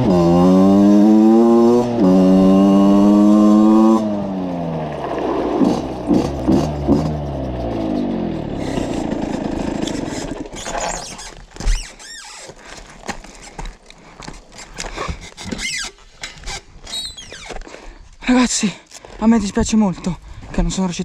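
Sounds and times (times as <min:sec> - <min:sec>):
dirt bike engine running: 0:00.0 - 0:11.0
short high squeaks: 0:08.6 - 0:09.1, 0:09.8 - 0:12.6, 0:14.6 - 0:17.6.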